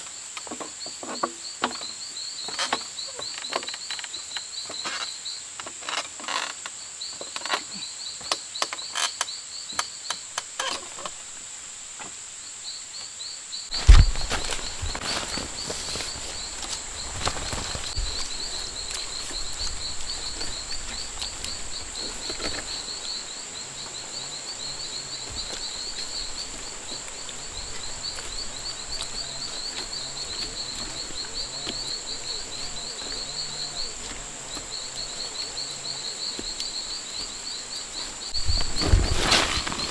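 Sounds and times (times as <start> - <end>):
high insect drone: 0.0 - 39.9
loud thud: 13.7 - 15.2
sharp knocks: 13.7 - 19.5.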